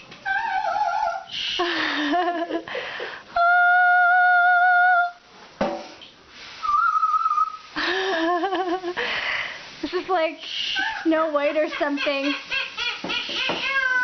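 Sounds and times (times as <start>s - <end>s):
parrot whistling: 6.6s - 7.7s, 12.3s - 14.0s.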